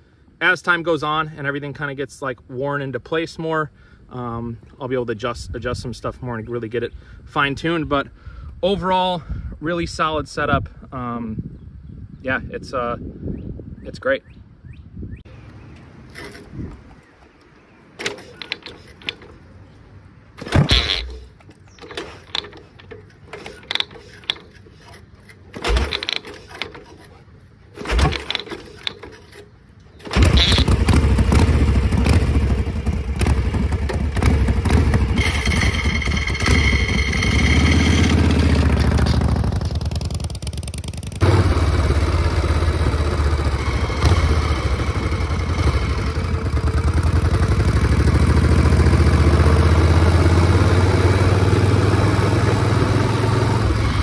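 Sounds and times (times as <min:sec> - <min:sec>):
motorcycle kick-start thumps: 0:15.7 - 0:19.4, 0:20.4 - 0:27.1, 0:27.8 - 0:42.2
motorcycle engine running: 0:30.1 - 0:54.0.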